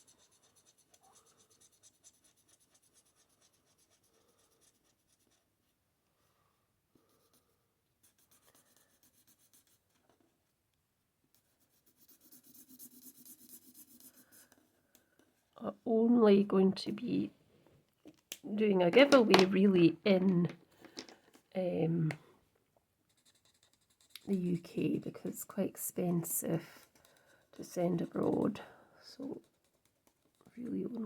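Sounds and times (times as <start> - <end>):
marker nib scratching on card: 0.0 - 5.5, 8.0 - 9.9, 11.6 - 14.6, 23.1 - 24.6, 26.7 - 28.6, 29.3 - 30.8.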